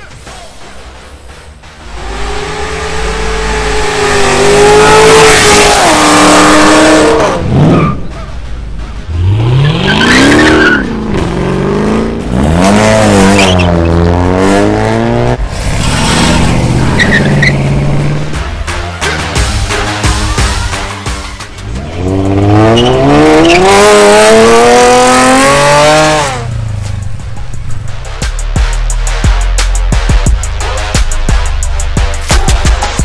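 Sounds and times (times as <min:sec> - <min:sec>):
car engine revving hard: 0:02.0 - 0:07.8, 0:09.1 - 0:18.4, 0:21.7 - 0:26.6
tyre squeal: 0:13.2 - 0:14.0.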